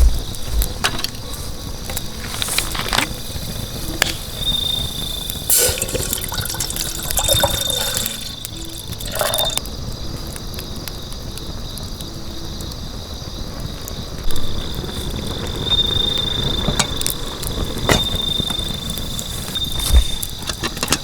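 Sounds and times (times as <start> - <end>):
campfire crackling and popping: 0.0 - 21.0
insect trilling: 2.5 - 9.6.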